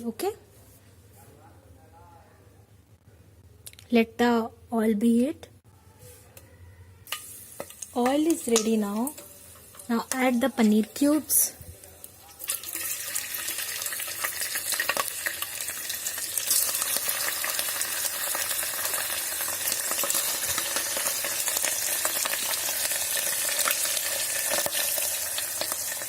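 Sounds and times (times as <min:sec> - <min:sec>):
cheese frying in hot oil: 0:07.1 - 0:26.0.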